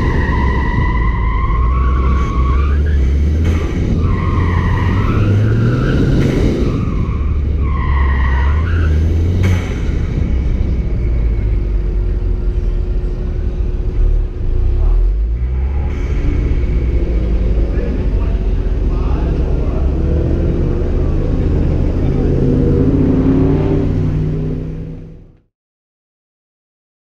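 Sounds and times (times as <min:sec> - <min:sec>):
tyres squealing: 0:00.0 - 0:09.6
car engine running hard: 0:00.0 - 0:25.4.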